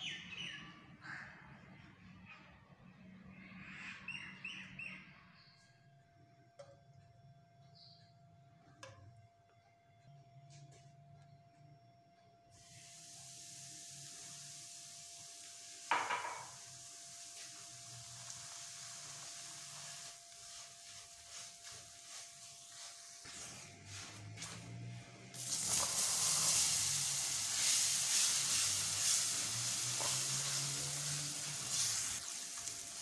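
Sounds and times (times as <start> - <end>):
semolina sizzling in a pan: 12.6 - 23.3, 24.2 - 33.0.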